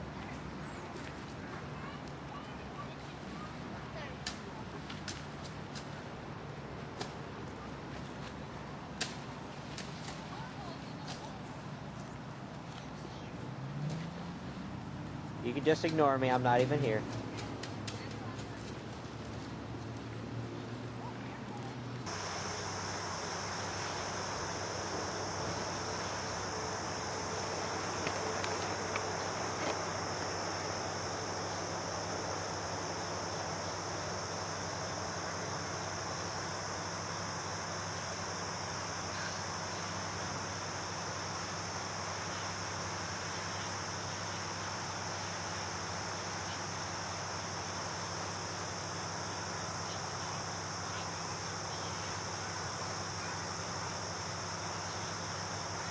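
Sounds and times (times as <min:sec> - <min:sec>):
background hiss: 0:22.0 - 0:55.9
insects trilling: 0:22.1 - 0:55.9.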